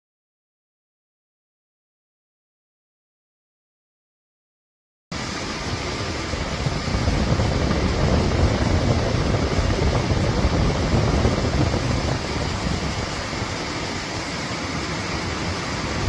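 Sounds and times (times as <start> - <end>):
air conditioner fan blowing: 5.2 - 16.0.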